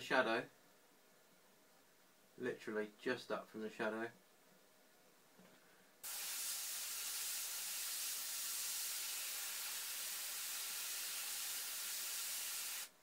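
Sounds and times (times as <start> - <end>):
airbrush spraying hiss: 6.0 - 13.0.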